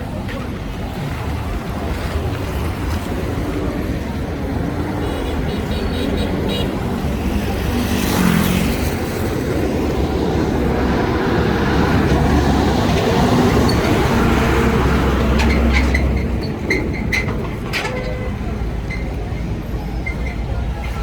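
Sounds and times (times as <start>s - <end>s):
traffic engine rumble: 0.0s - 21.0s
vehicle passing close: 1.2s - 16.4s.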